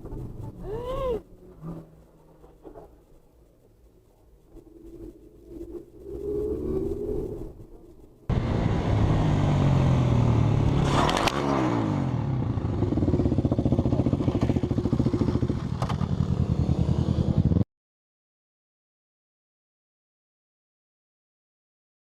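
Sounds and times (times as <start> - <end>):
motorcycle engine running: 8.3 - 17.6.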